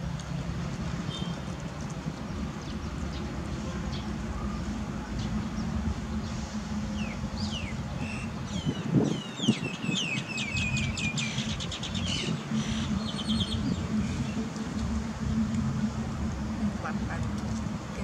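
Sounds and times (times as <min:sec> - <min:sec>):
steady low hum: 0:00.0 - 0:18.0
small birds chirping: 0:05.2 - 0:14.5.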